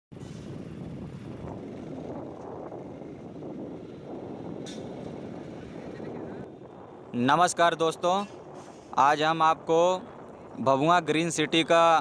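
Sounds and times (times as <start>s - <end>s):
motorbike engine rumble: 0.1s - 7.3s
wind noise on microphone: 0.1s - 12.0s.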